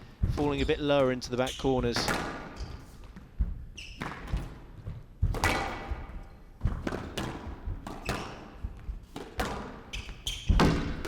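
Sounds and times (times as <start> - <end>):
squash ball hits ringing: 9.2 - 11.0.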